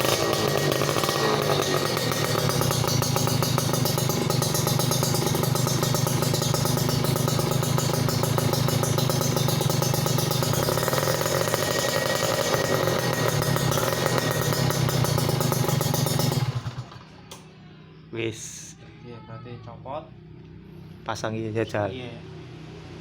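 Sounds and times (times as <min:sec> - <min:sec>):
two-stroke motorcycle engine idling: 0:00.0 - 0:17.6.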